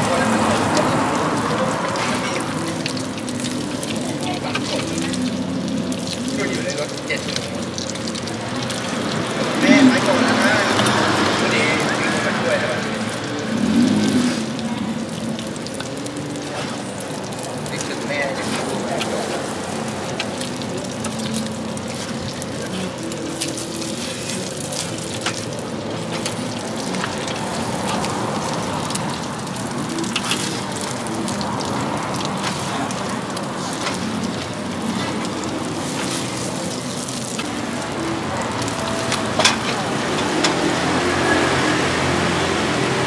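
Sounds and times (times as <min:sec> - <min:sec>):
omelette sizzling in hot oil: 0:00.0 - 0:43.0.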